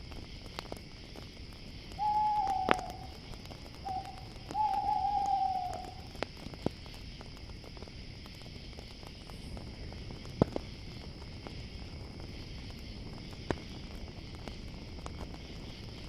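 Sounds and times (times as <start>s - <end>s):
campfire popping and crackling: 0.0s - 16.0s
crickets chirring: 0.0s - 16.0s
owl hooting: 2.0s - 3.2s, 3.8s - 6.1s.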